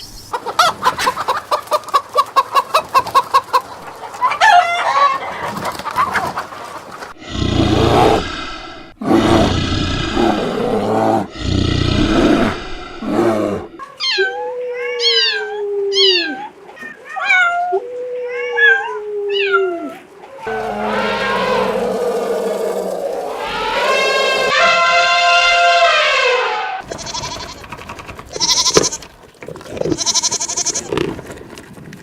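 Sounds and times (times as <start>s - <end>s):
cat yowling and meowing: 13.9s - 22.0s.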